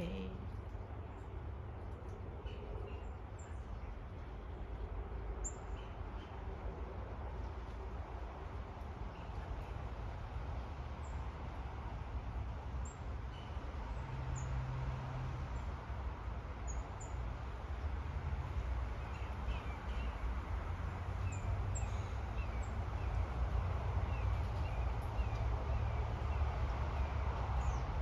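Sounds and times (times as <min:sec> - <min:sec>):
songbirds calling: 0:18.9 - 0:28.0.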